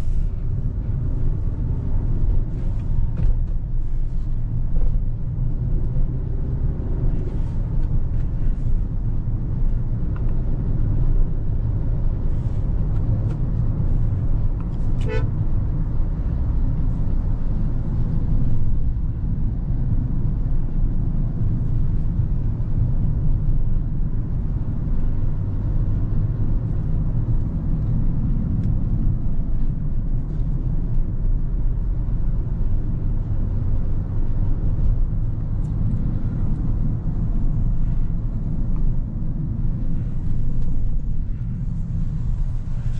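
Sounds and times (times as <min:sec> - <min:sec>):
car interior engine rumble: 0:00.0 - 0:42.9
car horn toot: 0:15.0 - 0:15.4.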